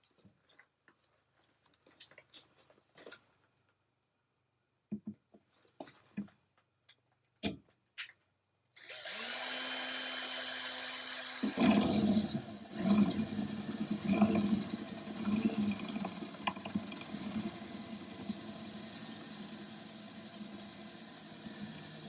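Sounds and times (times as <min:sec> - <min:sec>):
cordless drill whining: 0:08.8 - 0:22.0
drill cutting metal panel: 0:08.8 - 0:22.0.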